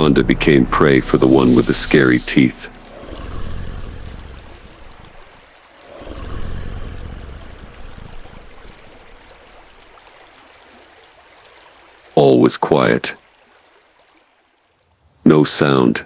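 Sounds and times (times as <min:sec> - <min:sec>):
soft rushing ambience: 0:00.0 - 0:05.7.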